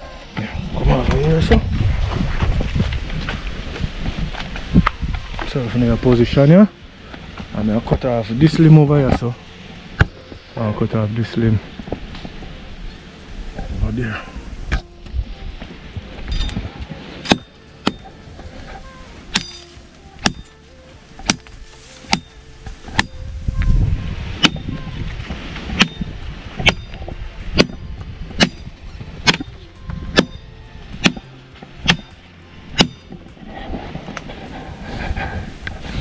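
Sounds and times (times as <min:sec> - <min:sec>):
wind rumble on microphone: 0:00.0 - 0:17.2, 0:21.5 - 0:36.0
machete chopping tree limb: 0:17.2 - 0:18.2, 0:19.3 - 0:20.5, 0:21.2 - 0:23.2, 0:24.4 - 0:24.7, 0:25.6 - 0:26.9, 0:27.5 - 0:27.8, 0:28.4 - 0:30.4, 0:31.0 - 0:33.2.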